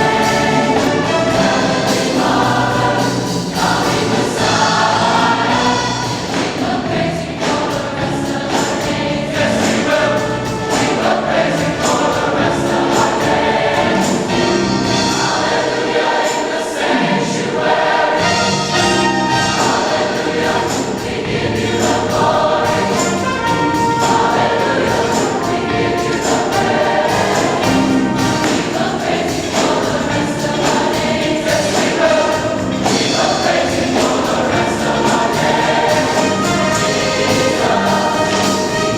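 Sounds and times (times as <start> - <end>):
choir singing gospel song: 0.0 - 38.9.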